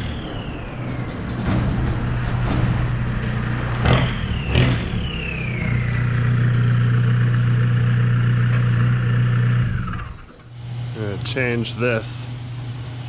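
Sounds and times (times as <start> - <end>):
high whine falling in pitch: 0.0 - 10.2
vehicle engine running: 0.0 - 13.0.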